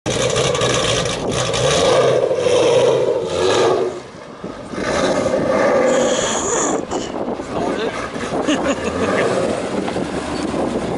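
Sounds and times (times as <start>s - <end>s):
car engine revving loudly: 0.1s - 6.8s, 8.8s - 10.7s.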